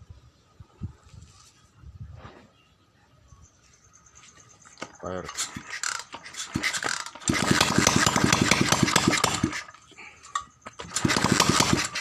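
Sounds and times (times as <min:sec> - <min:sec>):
motorcycle engine starting and faltering: 0:05.3 - 0:12.0.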